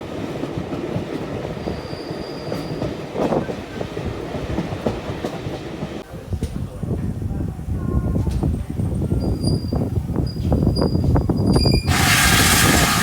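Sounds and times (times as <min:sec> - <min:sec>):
train rumbling on track: 0:00.0 - 0:13.0
thin wheel squeal: 0:10.3 - 0:13.0
wheels clicking over rail joints: 0:10.4 - 0:13.0.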